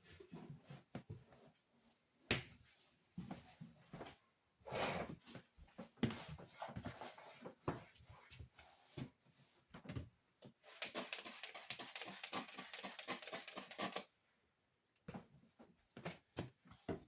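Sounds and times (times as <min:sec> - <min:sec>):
scratchy rubbing with rapid clicks: 0:10.7 - 0:14.1.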